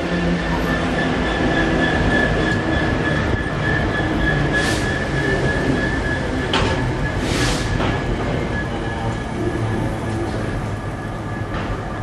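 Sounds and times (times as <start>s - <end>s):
freight train wagons rumbling: 0.0s - 12.0s
high-pitched wheel squeal: 0.6s - 9.6s.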